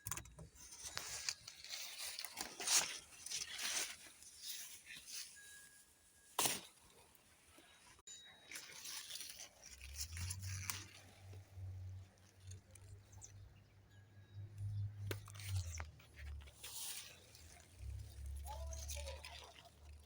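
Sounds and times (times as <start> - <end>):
stems snapping and tearing: 0.8 - 5.2, 8.8 - 13.2
leaves crackling: 0.8 - 7.8, 8.5 - 13.4, 15.1 - 20.0.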